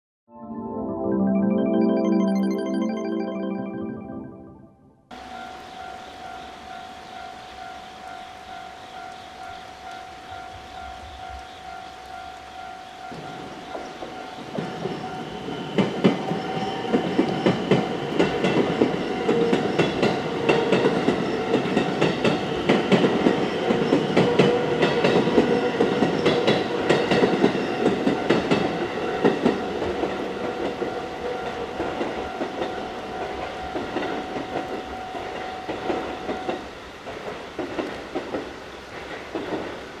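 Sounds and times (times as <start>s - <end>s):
level crossing warning bell: 5.1s - 20.3s, 27.6s - 36.6s
train wheels clattering over rail joints: 35.7s - 39.9s.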